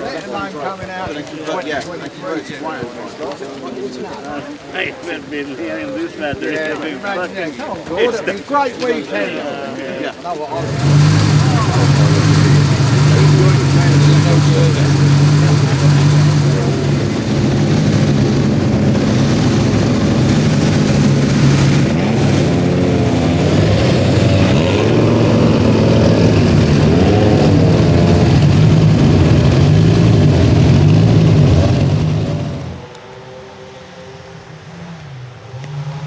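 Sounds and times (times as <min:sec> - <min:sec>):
rally car engine idling: 0:10.6 - 0:32.9.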